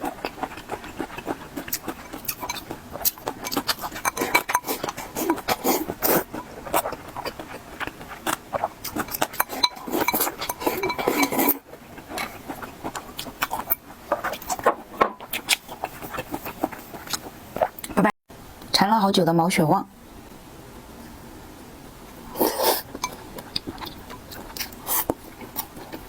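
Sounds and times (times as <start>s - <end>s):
wet chewing and mouth smacking: 0.0s - 18.0s, 22.6s - 26.0s
utensils clinking on a dish: 3.4s - 4.9s, 9.2s - 11.6s.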